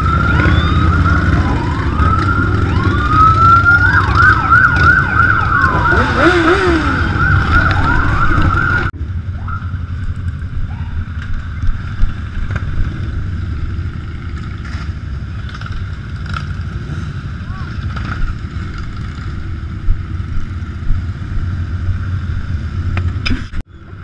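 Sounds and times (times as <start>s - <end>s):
wailing siren: 0.0s - 9.9s
warbling siren: 0.0s - 10.0s
motorcycle engines rumbling: 0.0s - 24.0s.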